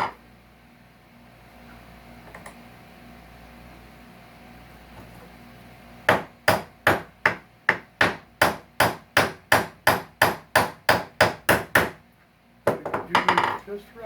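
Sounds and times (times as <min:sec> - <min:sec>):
hammer tapping on wood: 0:06.1 - 0:12.0.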